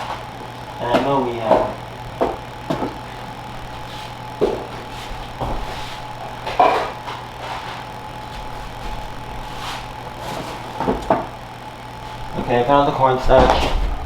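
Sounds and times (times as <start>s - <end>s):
steady low hum: 0.0s - 14.0s
containers knocking and clattering: 6.4s - 7.8s.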